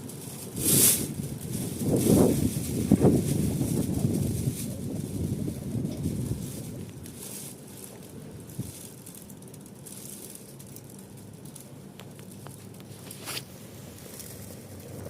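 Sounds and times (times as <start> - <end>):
wood fire rushing: 0.0 - 11.6, 12.6 - 15.0
fire crackles and pops: 0.0 - 15.0.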